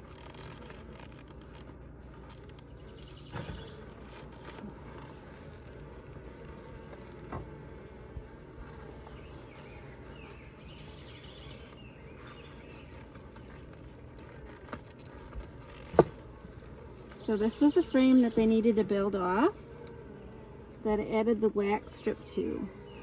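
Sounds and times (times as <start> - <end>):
honeybees humming: 0.0 - 23.0
wooden hive frames knocking: 15.4 - 16.4.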